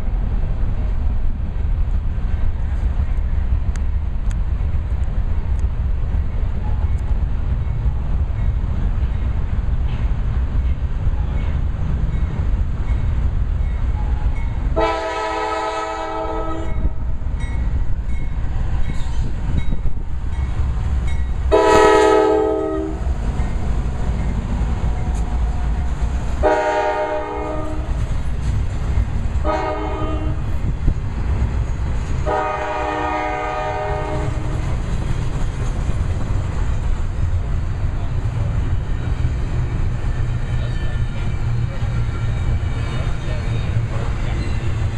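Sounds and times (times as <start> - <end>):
low rumble of passing train: 0.0 - 44.9
locomotive horn blasts: 14.8 - 17.0, 21.5 - 23.1, 26.4 - 28.0, 29.4 - 30.5, 32.2 - 34.5.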